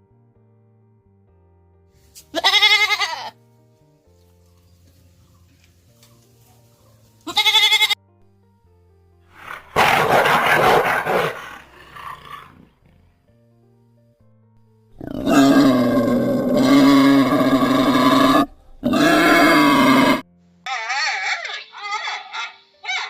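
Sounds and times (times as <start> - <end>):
big cat roaring: 9.3 - 13.1, 15.0 - 20.2.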